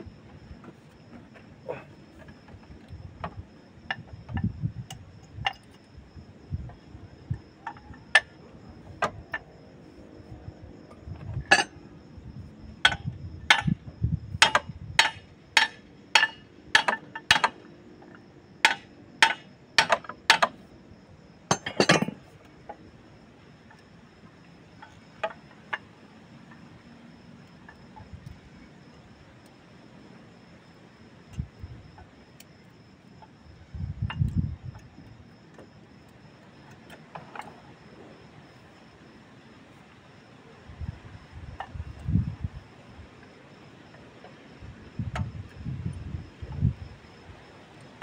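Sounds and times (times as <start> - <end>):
hand tools clinking on metal: 11.5 - 11.8, 21.5 - 22.3.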